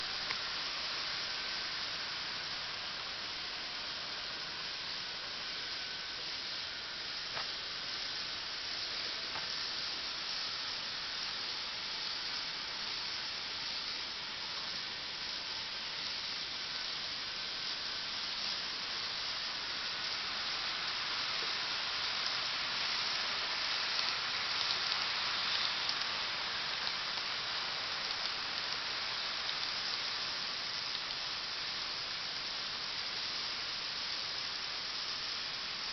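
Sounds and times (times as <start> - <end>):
model train whirring on track: 0.0 - 35.9.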